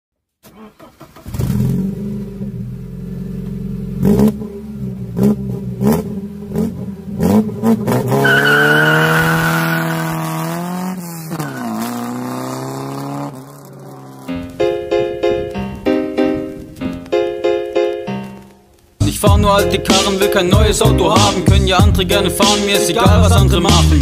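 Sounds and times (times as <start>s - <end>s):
car engine starting and idling: 0.4s - 17.1s
car engine revving: 0.8s - 15.8s.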